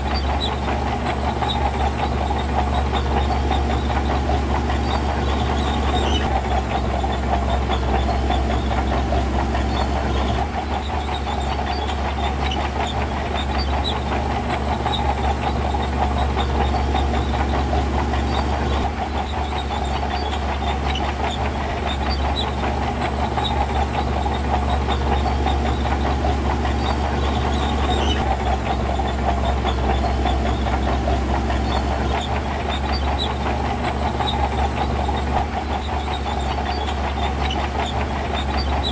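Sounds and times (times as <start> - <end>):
heavy diesel engine droning: 0.0 - 38.9.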